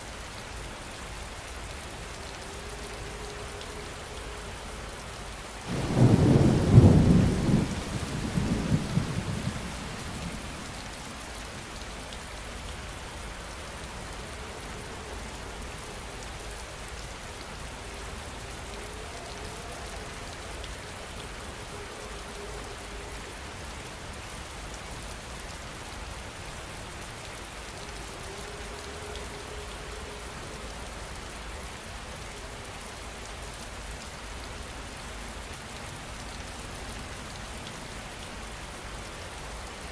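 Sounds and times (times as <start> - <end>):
heavy rain: 0.0 - 39.9
thunderclap rumbling: 5.7 - 11.3.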